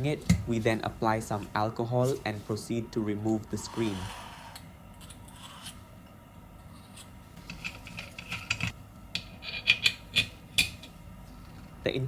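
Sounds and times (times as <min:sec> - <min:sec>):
pry tool scraping and clicking: 0:07.0 - 0:10.9.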